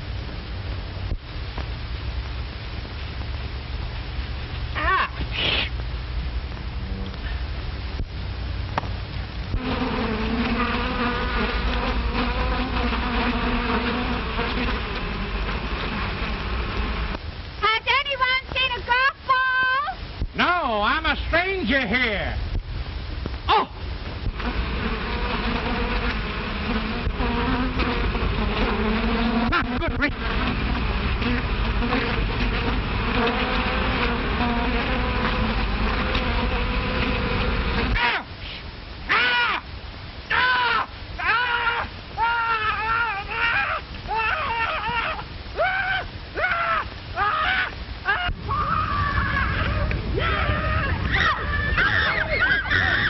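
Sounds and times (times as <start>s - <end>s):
soundtrack hiss and hum: 0.0s - 53.0s
bee buzzing: 8.7s - 18.7s, 24.0s - 38.3s.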